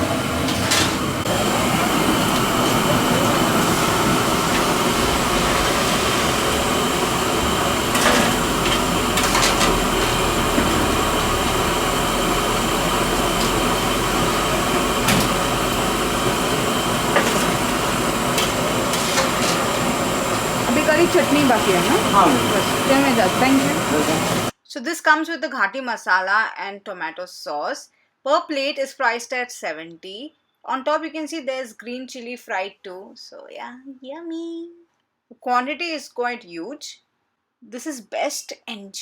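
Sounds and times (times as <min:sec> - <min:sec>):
food sizzling in hot oil: 0:00.0 - 0:24.5.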